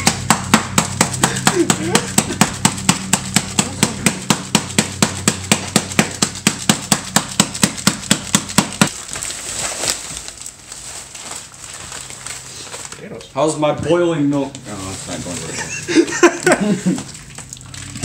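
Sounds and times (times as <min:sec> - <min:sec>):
pounding on kitchen counter: 0:00.0 - 0:08.9.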